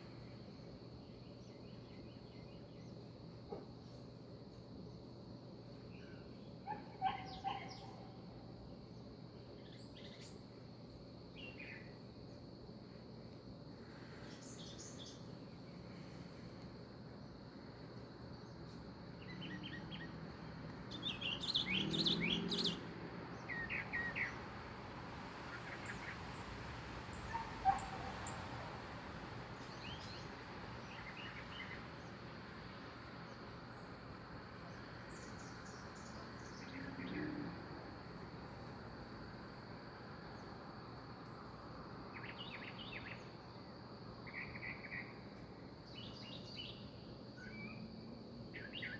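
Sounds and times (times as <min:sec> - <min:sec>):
small birds chirping: 0:00.0 - 0:10.7, 0:11.3 - 0:12.6, 0:13.7 - 0:24.6, 0:25.4 - 0:28.6, 0:29.5 - 0:37.3, 0:42.1 - 0:43.4, 0:45.8 - 0:47.9, 0:48.5 - 0:48.9
high insect drone: 0:00.0 - 0:48.9
low background hiss: 0:00.0 - 0:48.9.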